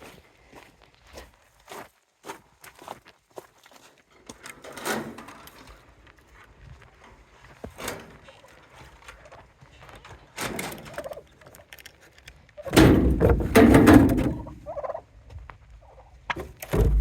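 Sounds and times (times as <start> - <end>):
turkeys gobbling: 10.9 - 11.3, 12.6 - 15.1, 15.8 - 16.2.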